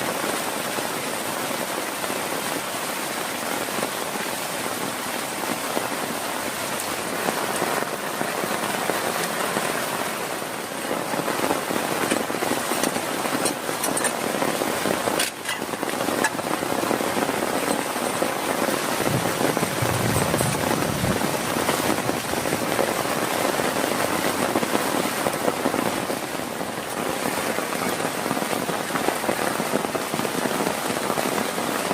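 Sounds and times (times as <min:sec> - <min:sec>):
heavy rain falling: 0:00.0 - 0:31.9
sharp raindrop hits: 0:00.2 - 0:31.9.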